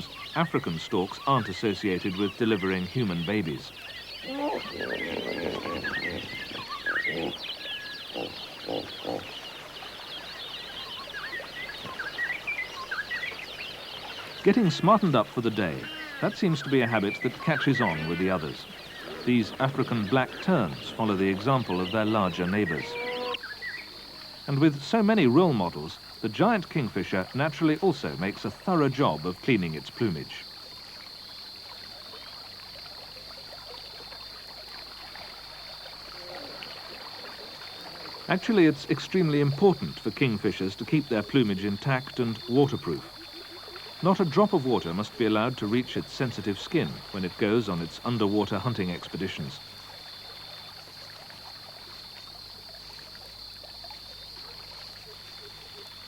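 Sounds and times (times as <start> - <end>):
birds chirping and calling: 0.0 - 24.0
short low bird calls: 0.0 - 24.2
high-pitched insect chorus: 0.0 - 56.0
trickling water: 0.0 - 56.0
sliding whistled bird calls: 2.0 - 23.9.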